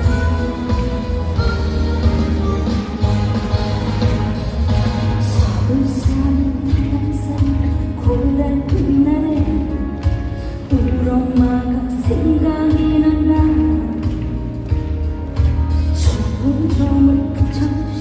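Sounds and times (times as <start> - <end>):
band accompaniment with bass: 0.0 - 18.0
woman singing with vibrato: 5.2 - 14.4, 16.0 - 18.0.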